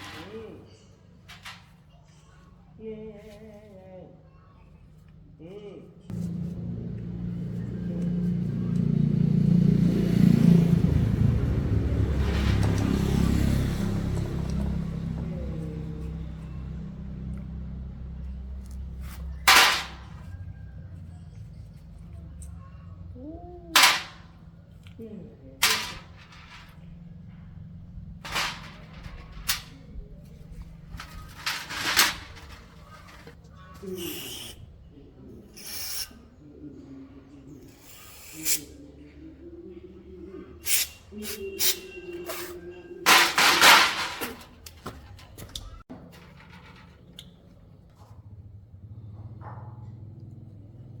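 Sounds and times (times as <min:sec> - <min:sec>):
motorcycle engine revving: 0:06.1 - 0:18.0
sharp metallic clanks: 0:19.4 - 0:20.3, 0:23.8 - 0:24.4, 0:25.6 - 0:26.9, 0:28.2 - 0:29.8, 0:30.9 - 0:33.4, 0:43.1 - 0:45.3
motorcycle engine idling: 0:48.1 - 0:51.0.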